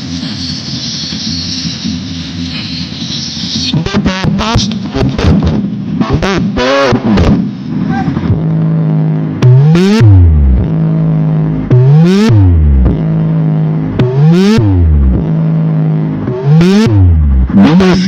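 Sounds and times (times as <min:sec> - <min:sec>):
buzzy synth tone: 0:00.0 - 0:18.0
falling bass sweep: 0:01.5 - 0:18.0
rising synth sweep: 0:05.7 - 0:18.0.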